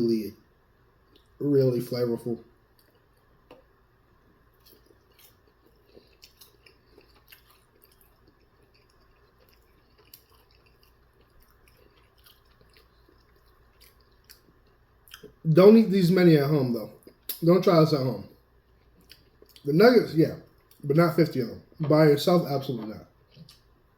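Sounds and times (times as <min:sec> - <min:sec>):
faint chewing: 0:01.0 - 0:01.4, 0:02.7 - 0:15.4, 0:18.3 - 0:19.7, 0:22.7 - 0:23.8.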